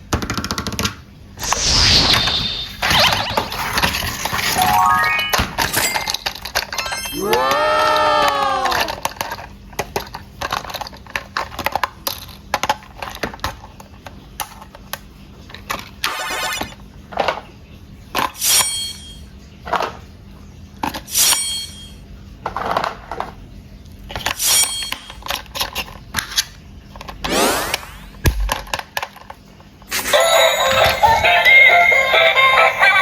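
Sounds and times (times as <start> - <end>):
plastic toys rattling: 0.1 - 7.4, 8.6 - 16.0, 24.1 - 27.7
high-pitched squeaks: 1.4 - 7.3
plastic toys clicking: 5.6 - 15.9.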